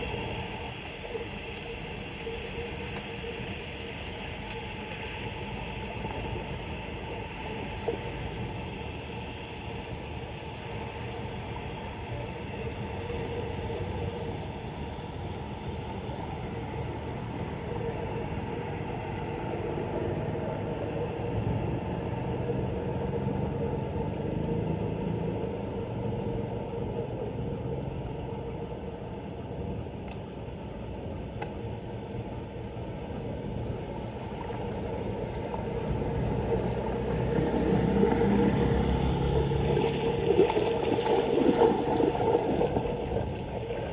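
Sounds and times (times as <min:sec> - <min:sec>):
floodwater rushing down drain: 0:33.7 - 0:43.9.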